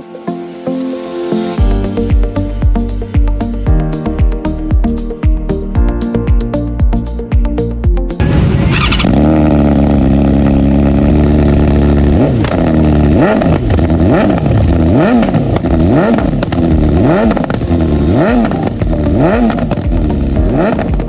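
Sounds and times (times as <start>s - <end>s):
motorcycle engine revving: 8.2s - 21.0s.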